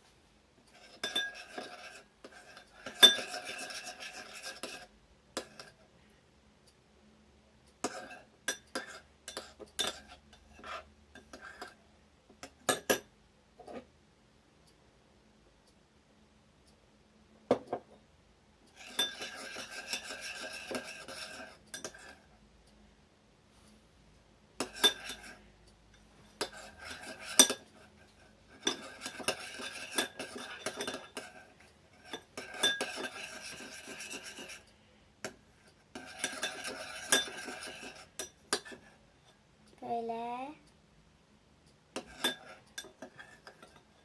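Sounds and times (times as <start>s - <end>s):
spoon scraping and clinking bowl: 0.7s - 5.8s, 7.8s - 11.8s, 18.7s - 22.3s, 24.6s - 25.4s, 26.3s - 39.0s, 42.0s - 44.0s.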